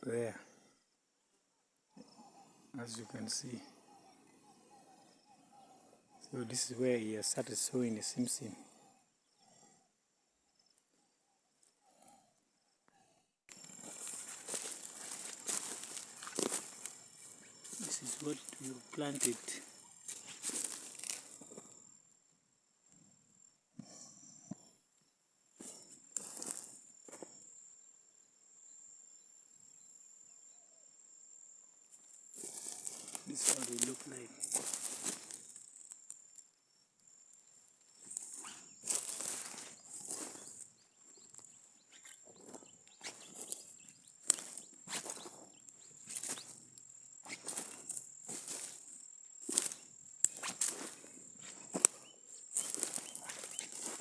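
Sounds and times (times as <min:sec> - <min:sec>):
high-pitched insect drone: 0:13.5 - 0:21.6, 0:32.3 - 0:36.0, 0:38.0 - 0:54.0
footsteps in dry grass: 0:13.5 - 0:21.7, 0:25.6 - 0:27.3, 0:32.4 - 0:36.1, 0:38.0 - 0:54.0.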